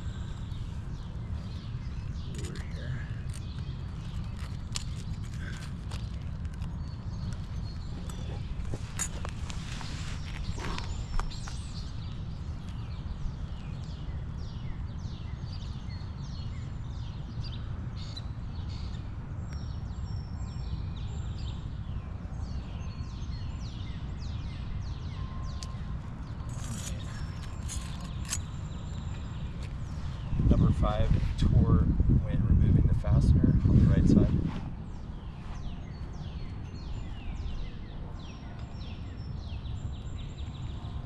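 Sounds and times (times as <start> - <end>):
steady low rumble: 0.0 - 15.1, 24.0 - 41.0
small birds chirping: 0.0 - 41.0.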